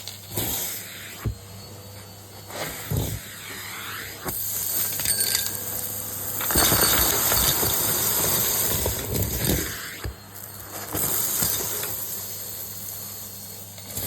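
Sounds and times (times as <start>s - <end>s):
vacuum cleaner running: 0.0s - 14.0s
debris rattling through hose: 6.4s - 9.7s.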